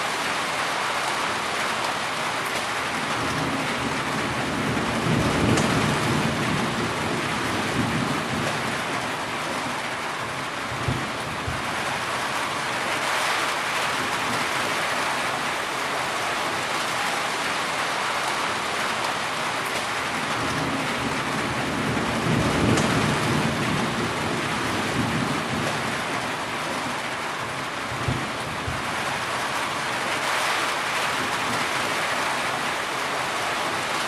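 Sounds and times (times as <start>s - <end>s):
heavy rain: 0.0s - 34.0s
low rumble of thunder: 3.0s - 12.1s, 20.1s - 26.8s, 27.4s - 29.3s.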